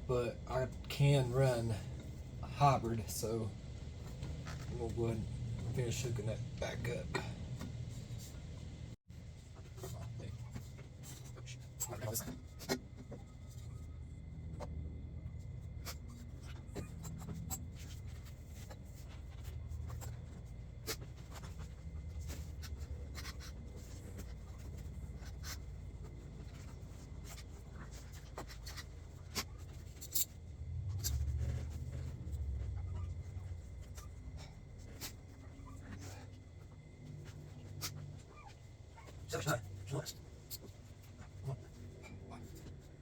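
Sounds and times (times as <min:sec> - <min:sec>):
car parts clicking and scraping: 0:15.7 - 0:38.3.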